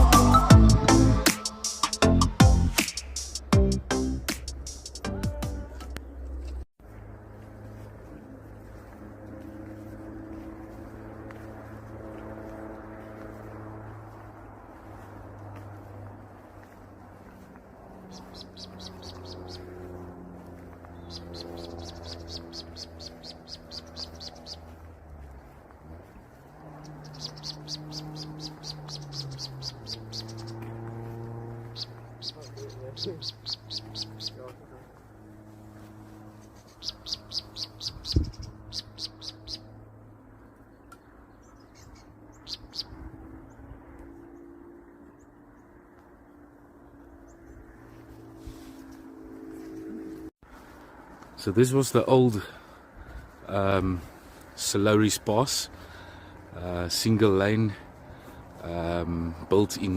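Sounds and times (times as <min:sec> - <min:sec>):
steady low hum: 0:06.0 - 0:51.6
small bird singing rapid notes: 0:18.1 - 0:20.0, 0:20.9 - 0:25.6, 0:26.3 - 0:34.6, 0:36.3 - 0:39.8, 0:40.7 - 0:43.7.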